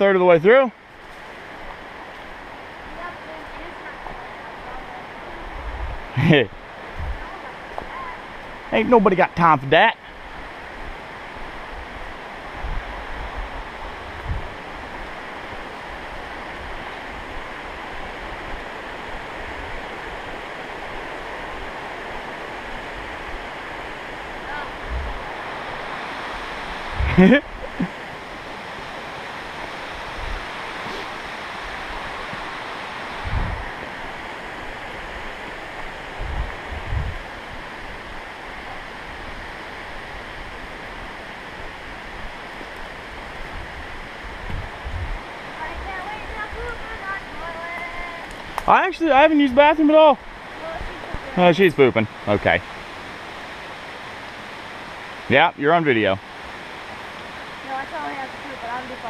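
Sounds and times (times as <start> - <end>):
creek water rushing: 0.0 - 59.0.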